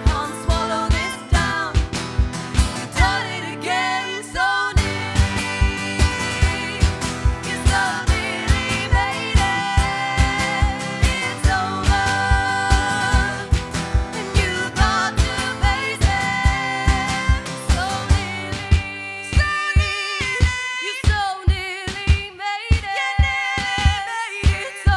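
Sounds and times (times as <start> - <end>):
low drum beat: 0.0 - 3.2, 4.8 - 20.6
strummed guitar: 0.0 - 19.5
live pop-rock band: 0.0 - 20.4.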